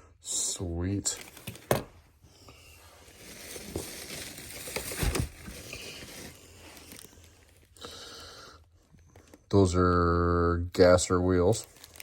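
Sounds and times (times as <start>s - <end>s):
packaging crinkling and rustling: 1.0s - 2.1s, 2.9s - 7.8s, 11.3s - 12.0s.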